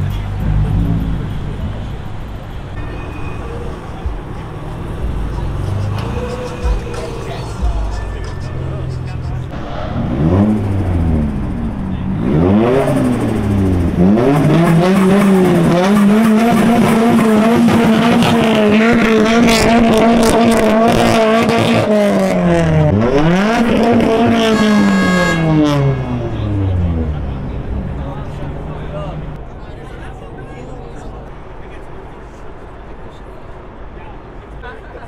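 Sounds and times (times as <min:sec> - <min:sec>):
car engine revving hard: 0:08.8 - 0:29.4.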